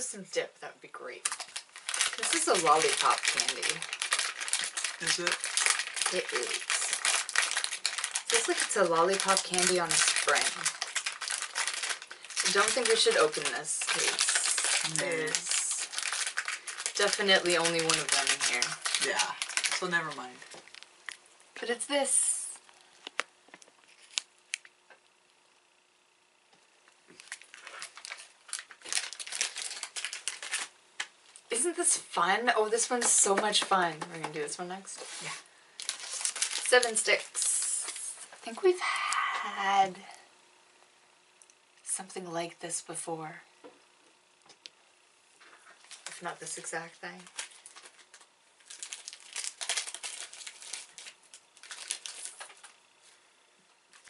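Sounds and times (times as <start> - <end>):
snack packaging crinkling: 1.1 - 21.2, 22.6 - 25.2, 27.1 - 31.6, 35.0 - 38.4, 45.4 - 53.2.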